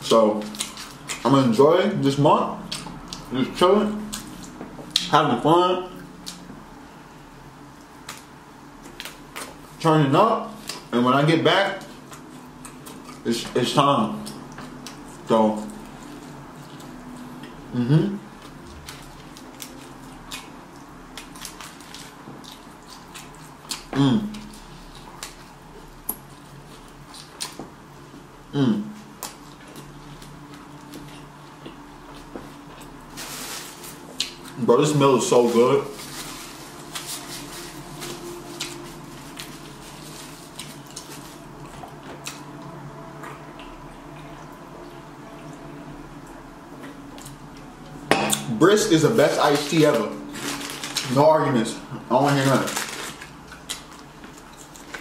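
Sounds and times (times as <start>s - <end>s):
wet chewing and mouth sounds: 0.4s - 1.4s, 2.6s - 3.4s, 4.0s - 5.1s, 11.8s - 13.6s, 14.2s - 17.7s, 18.3s - 28.3s, 29.0s - 34.6s, 35.4s - 48.5s, 52.3s - 55.0s.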